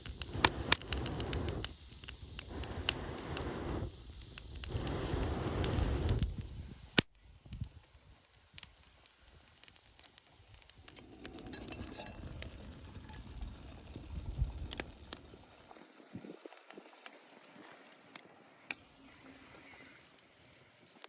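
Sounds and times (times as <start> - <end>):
sharp pops: 0.0 - 7.7
wood fire crackling: 0.0 - 21.0.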